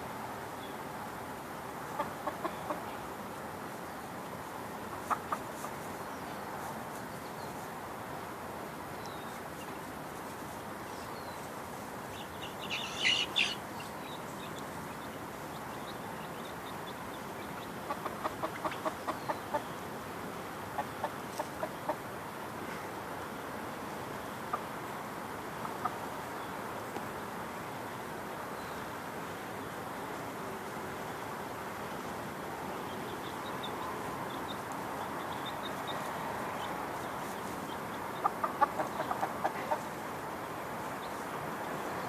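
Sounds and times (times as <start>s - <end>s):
steady outdoor hiss: 0.0s - 42.0s
chickens clucking: 1.9s - 3.0s, 4.9s - 5.9s, 12.2s - 19.7s, 20.7s - 22.1s, 24.5s - 24.8s, 25.5s - 26.2s, 33.1s - 40.0s.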